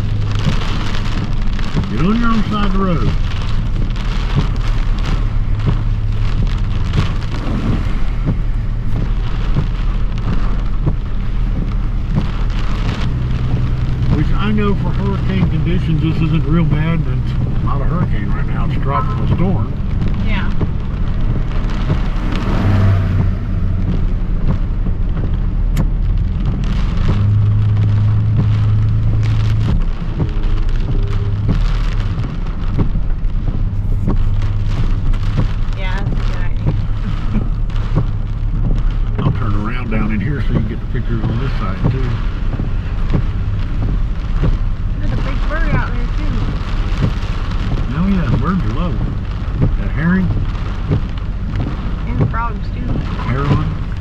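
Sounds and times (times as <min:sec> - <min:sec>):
engine and tyres on wet road: 0:00.0 - 0:54.0
rain on vehicle roof: 0:00.0 - 0:54.0.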